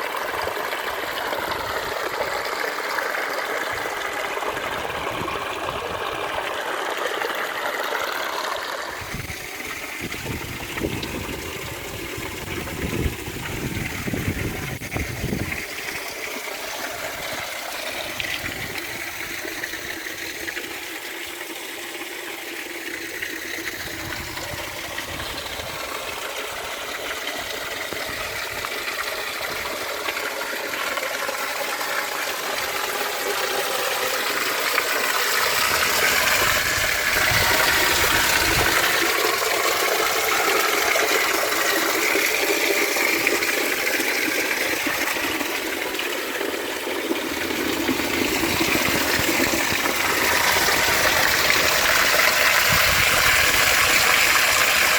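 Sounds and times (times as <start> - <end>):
rushing mountain water: 0.0 - 54.9.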